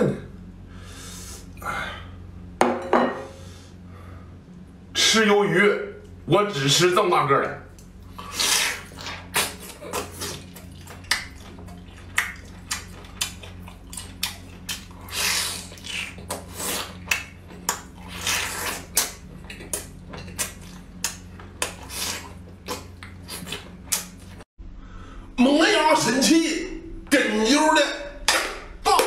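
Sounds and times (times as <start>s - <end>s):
wet chewing smacks and clicks: 7.8s - 24.4s
slurping: 8.0s - 24.4s.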